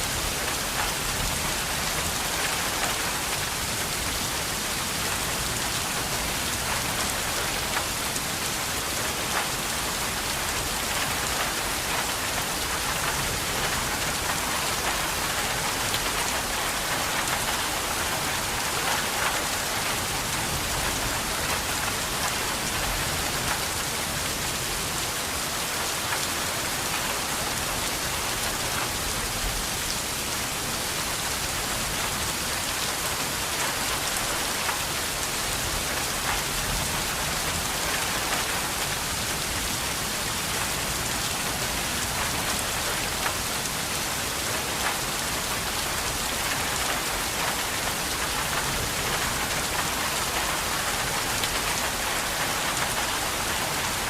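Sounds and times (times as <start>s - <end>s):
steady rain pattering: 0.0s - 54.0s.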